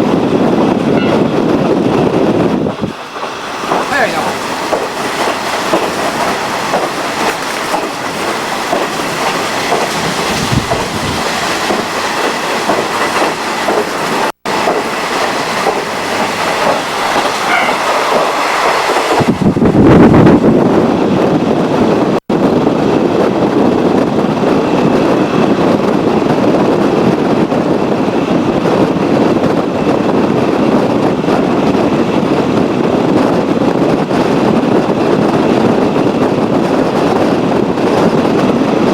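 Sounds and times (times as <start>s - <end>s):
train running on rails: 0.0s - 38.9s
wheels clattering over rail joints: 2.1s - 19.3s.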